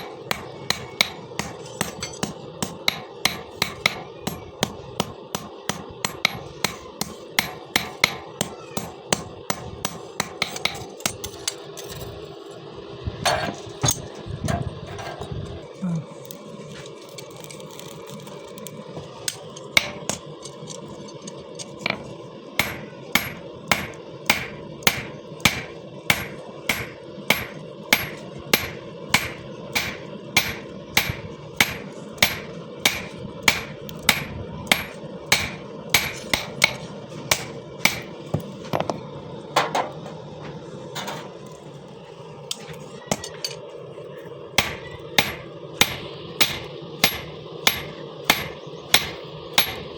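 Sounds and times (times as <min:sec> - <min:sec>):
hammer blows on steel: 0:00.0 - 0:10.8
steady hum: 0:00.0 - 0:17.2, 0:18.2 - 0:49.9.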